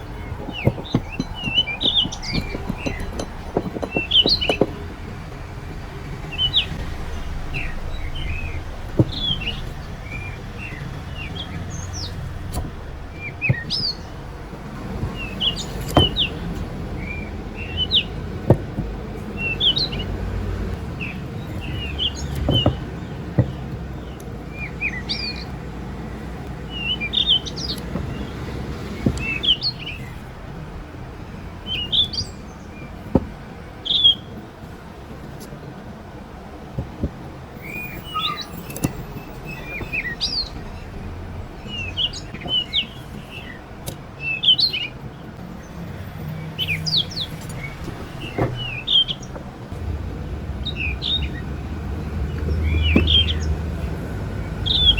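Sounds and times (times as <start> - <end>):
sharp clicks or knocks: 0.0 - 5.0
small birds chirping: 0.0 - 54.9.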